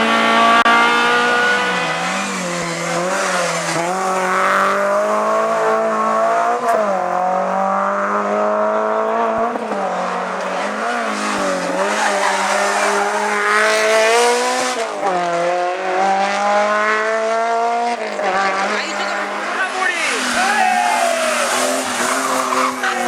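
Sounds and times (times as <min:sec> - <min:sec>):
race car engine accelerating: 0:00.0 - 0:23.0.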